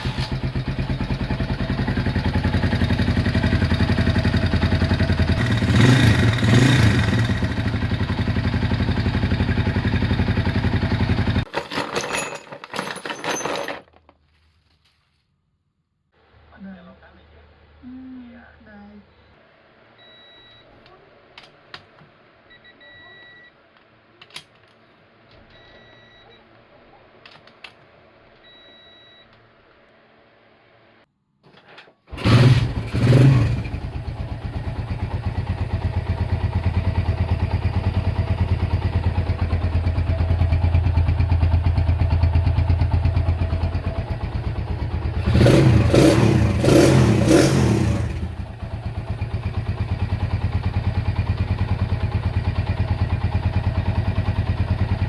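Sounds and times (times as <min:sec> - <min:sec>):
motorcycle engine revving: 0:00.0 - 0:11.4, 0:32.1 - 0:55.0
faint beeps and clicks: 0:22.5 - 0:23.6, 0:25.4 - 0:26.6.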